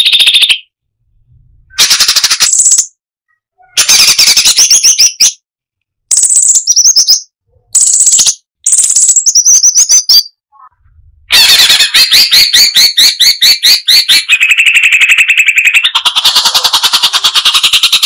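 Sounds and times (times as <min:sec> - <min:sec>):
bird singing chattering notes: 0:01.8 - 0:03.0, 0:06.1 - 0:10.4.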